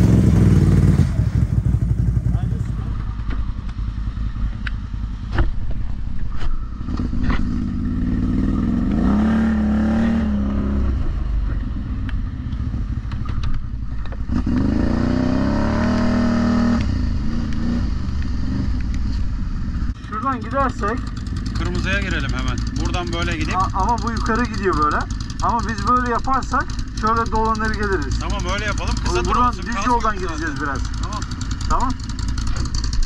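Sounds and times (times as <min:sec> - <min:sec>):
atv engine revving: 0:00.0 - 0:05.2, 0:06.7 - 0:33.0
sharp clicks and knocks: 0:11.4 - 0:14.7.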